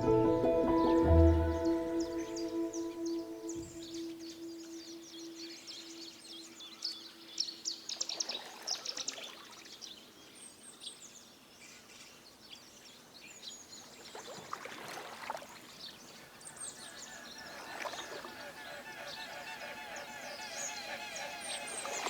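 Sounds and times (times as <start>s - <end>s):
brief rushing sound: 0.0s - 3.9s.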